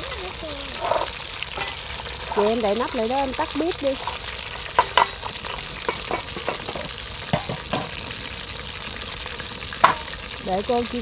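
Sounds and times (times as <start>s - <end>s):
fish sizzling in hot oil: 0.0s - 11.0s
clicks against pan: 4.0s - 8.0s, 9.8s - 10.2s.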